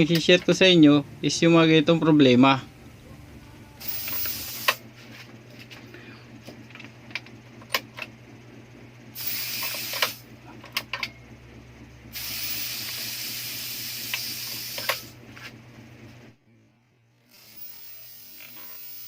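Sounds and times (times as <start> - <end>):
steady low hum: 0.0 - 19.0
electrical hissing: 3.8 - 4.8, 9.2 - 10.2, 12.1 - 15.2, 17.3 - 19.0.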